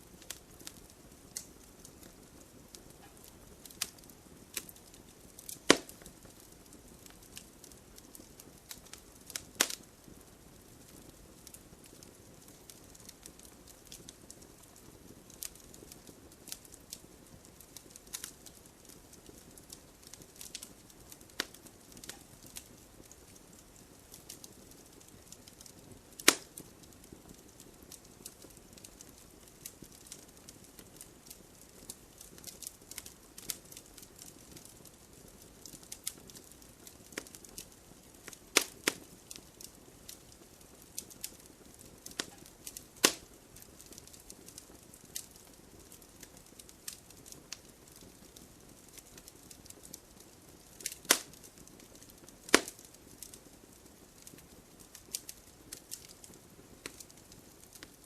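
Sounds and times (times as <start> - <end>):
fire crackling: 0.0 - 58.0
hiss of flames: 0.0 - 58.0
logs popping: 5.4 - 6.1, 26.2 - 26.6, 42.0 - 43.3, 50.8 - 51.4, 52.5 - 53.3.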